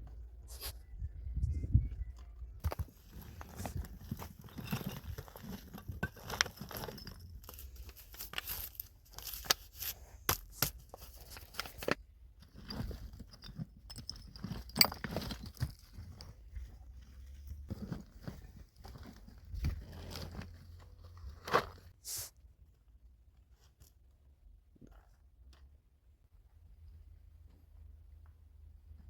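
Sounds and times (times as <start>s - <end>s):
objects being handled: 2.0s - 22.2s.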